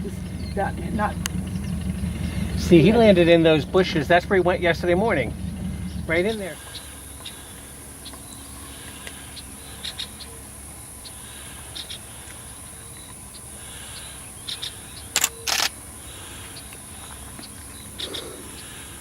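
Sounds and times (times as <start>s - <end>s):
high-pitched hiss: 6.1s - 19.0s
camera shutter clicks: 15.1s - 15.8s.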